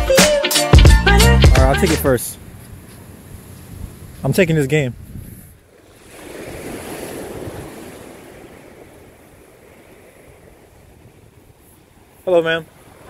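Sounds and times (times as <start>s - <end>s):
ocean wave breaking on beach: 5.8s - 13.0s.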